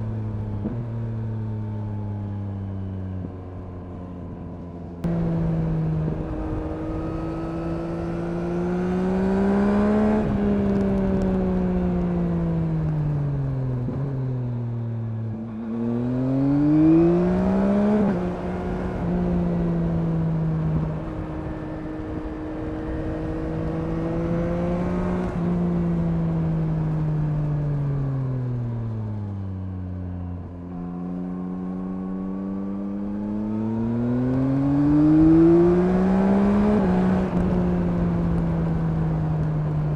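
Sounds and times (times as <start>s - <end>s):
motorcycle engine revving: 5.0s - 28.0s, 29.5s - 39.9s.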